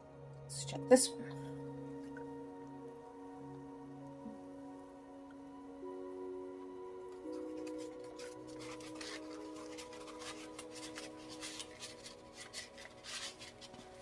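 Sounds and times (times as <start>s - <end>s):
soft ambient background music: 0.0s - 14.0s
paper rubbing and scraping: 7.3s - 14.0s.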